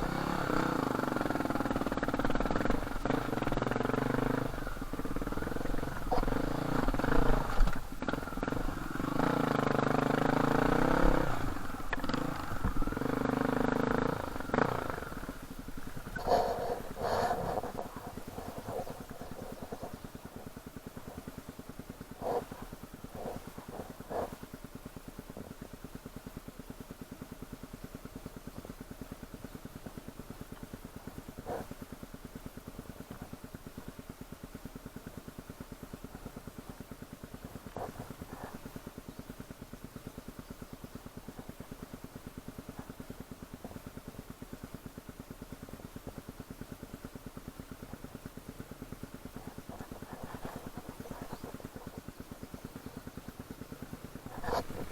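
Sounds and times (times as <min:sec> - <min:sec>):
dirt bike engine idling: 0:00.0 - 0:54.9.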